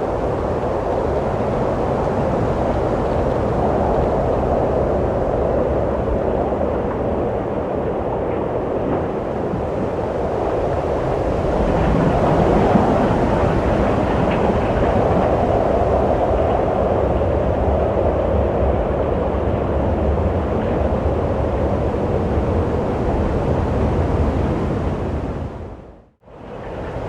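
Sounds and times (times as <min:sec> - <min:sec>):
steady wind blowing: 0:00.0 - 0:27.0.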